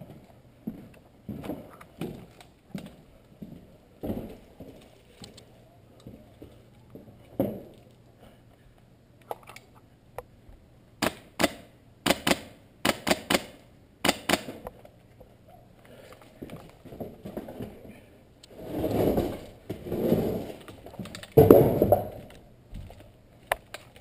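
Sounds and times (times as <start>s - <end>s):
airsoft guns firing: 11.0s - 14.6s.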